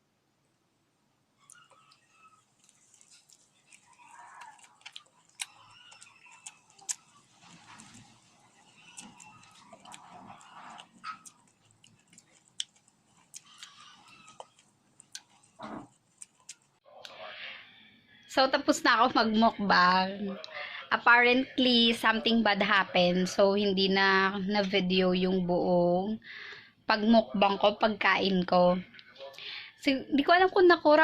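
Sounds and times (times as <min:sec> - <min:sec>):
utensil and mouth clicks: 0:01.4 - 0:17.2
soft chewing: 0:01.4 - 0:18.2.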